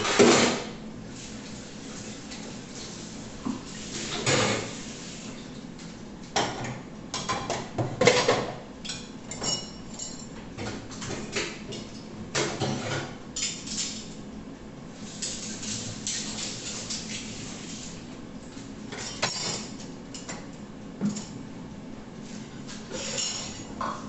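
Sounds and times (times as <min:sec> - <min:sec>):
dishes and cutlery clattering: 0:06.4 - 0:14.1, 0:18.9 - 0:21.4, 0:22.9 - 0:24.0.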